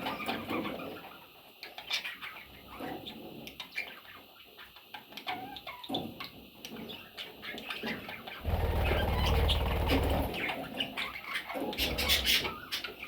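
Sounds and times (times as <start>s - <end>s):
budgerigars chattering: 7.8s - 13.0s.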